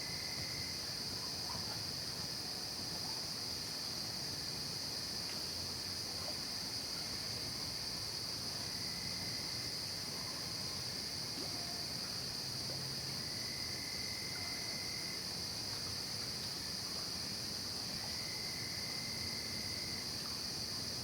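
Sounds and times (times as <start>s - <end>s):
crickets and insects chirping: 0.0s - 21.0s.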